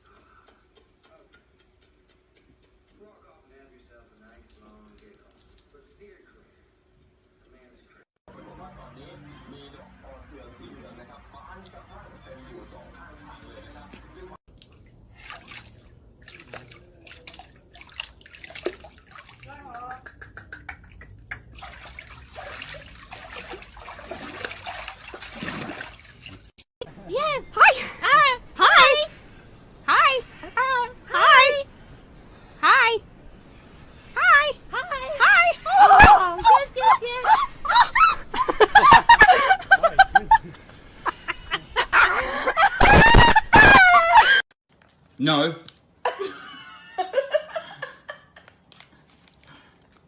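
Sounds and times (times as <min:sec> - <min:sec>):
water trickling and splashing: 0:13.0 - 0:26.6.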